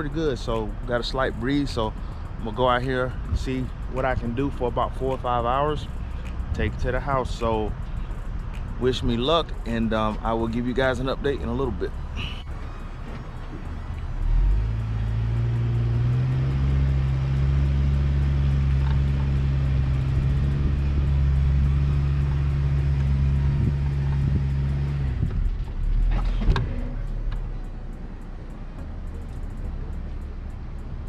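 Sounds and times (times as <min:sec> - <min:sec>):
motor running at low pitch: 0:11.4 - 0:31.0.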